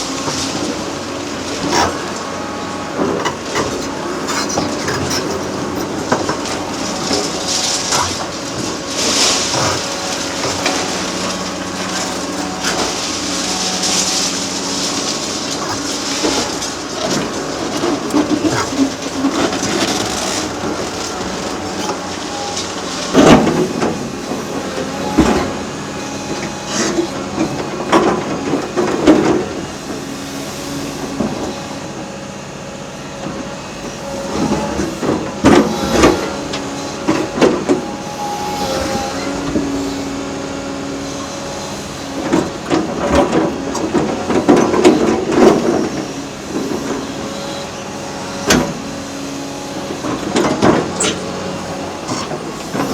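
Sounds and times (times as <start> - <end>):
concrete clanking and crunching: 0.0 - 30.0, 33.2 - 52.9
diesel engine under load: 0.0 - 52.9.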